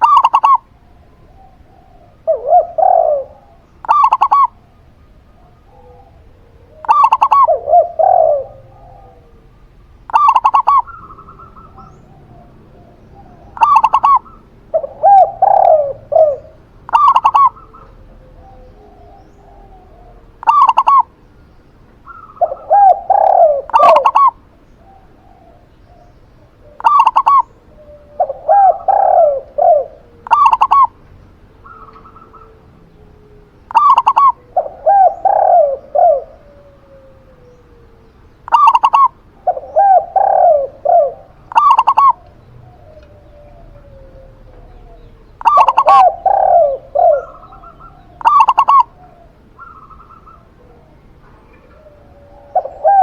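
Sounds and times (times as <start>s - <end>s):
dove low cooing: 0.0s - 53.0s
dove short high call: 22.0s - 31.0s, 31.6s - 37.9s, 38.5s - 53.0s.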